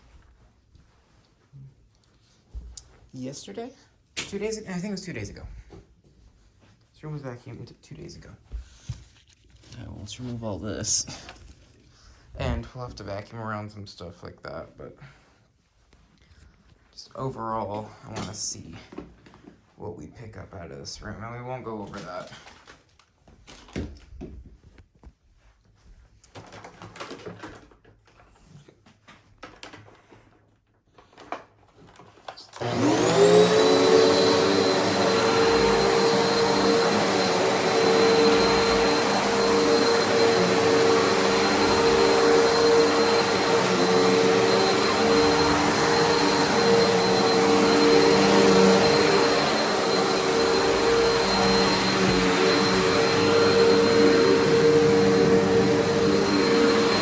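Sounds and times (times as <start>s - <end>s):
vacuum cleaner running: 32.5s - 57.0s.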